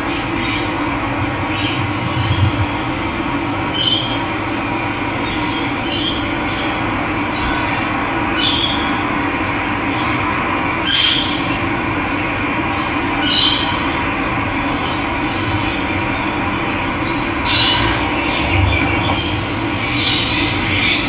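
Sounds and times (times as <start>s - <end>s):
bird calling: 3.6s - 6.2s.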